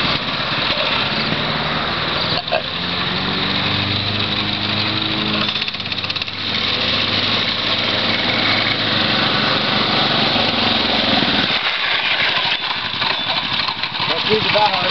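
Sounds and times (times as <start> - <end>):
mini bike engine running: 0.0 - 14.9.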